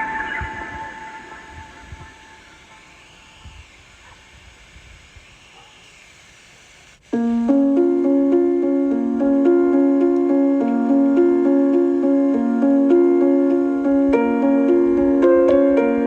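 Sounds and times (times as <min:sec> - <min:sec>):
gentle piano music: 0:00.0 - 0:03.0, 0:07.2 - 0:16.0
faint wind hiss: 0:00.0 - 0:16.0.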